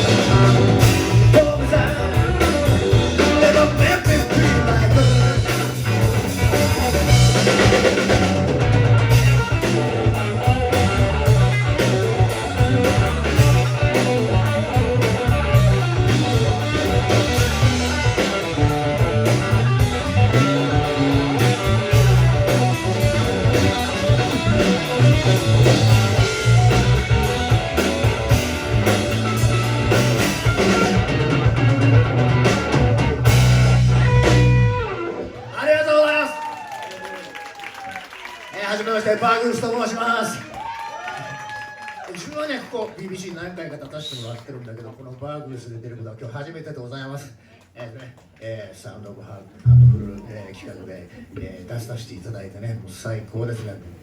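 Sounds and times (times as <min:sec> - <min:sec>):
rock band playing: 0:00.0 - 0:35.8, 0:49.6 - 0:50.3.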